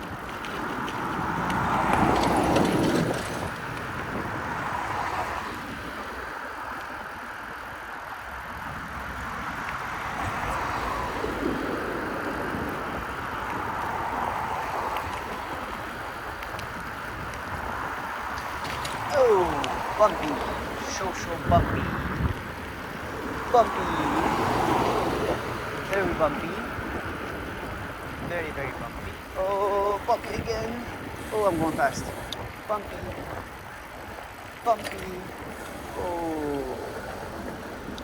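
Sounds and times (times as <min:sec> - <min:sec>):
motor traffic passing: 0:00.0 - 0:38.0
wind and road rumble: 0:00.0 - 0:38.0.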